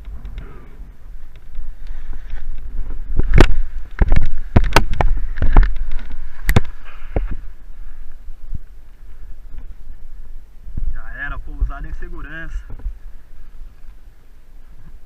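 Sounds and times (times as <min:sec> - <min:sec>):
strong wind buffeting microphone: 0:00.0 - 0:15.0
loud sharp cracks and thumps: 0:03.3 - 0:07.4.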